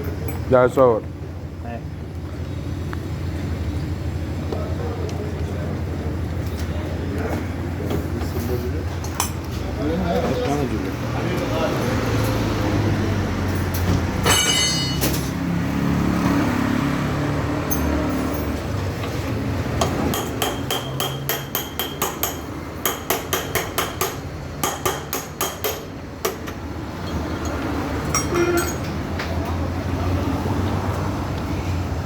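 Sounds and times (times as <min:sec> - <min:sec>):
hammer striking metal: 0:14.2 - 0:15.4, 0:19.8 - 0:26.4
ringing metal clang: 0:14.2 - 0:15.4.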